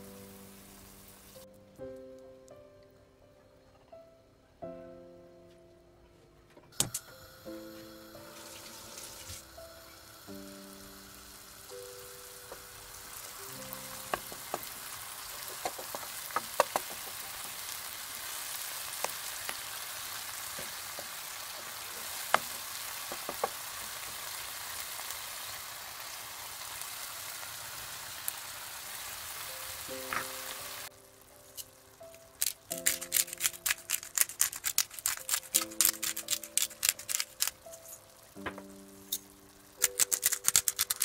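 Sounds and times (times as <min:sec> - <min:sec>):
vegetables sizzling in a frying pan: 0:00.0 - 0:01.5, 0:07.1 - 0:41.0
soft background music: 0:00.0 - 0:17.8, 0:29.2 - 0:41.0
wooden spoon knocking on pan: 0:14.0 - 0:14.8, 0:15.4 - 0:17.3, 0:22.0 - 0:23.7.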